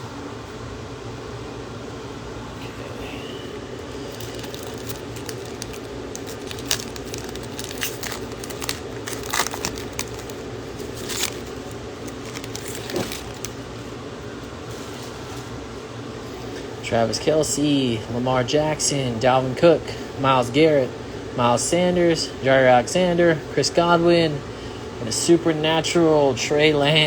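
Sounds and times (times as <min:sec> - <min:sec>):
fan-like hum: 0:00.0 - 0:27.0
wrapper crinkling and tearing: 0:03.8 - 0:13.7
cards being handled: 0:03.9 - 0:13.6.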